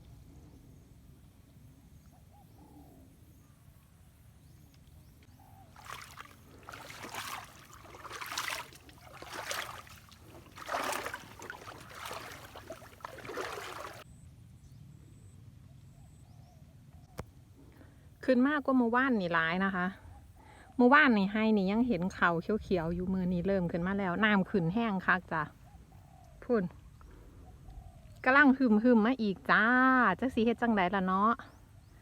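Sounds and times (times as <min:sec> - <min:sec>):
water splashing: 0:05.7 - 0:14.0.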